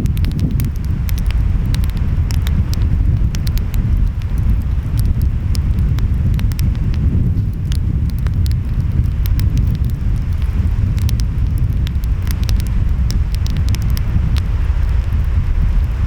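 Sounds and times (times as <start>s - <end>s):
wind: 0.0s - 16.0s
wood fire crackling and popping: 0.0s - 16.0s.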